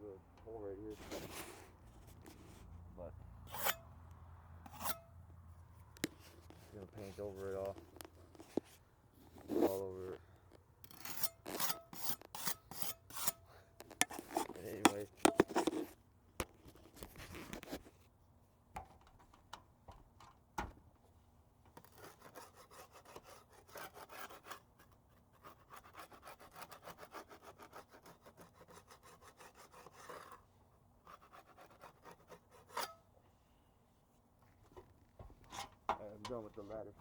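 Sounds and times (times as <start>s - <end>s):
hand tool rubbing strokes: 3.5s - 3.8s, 9.4s - 10.0s.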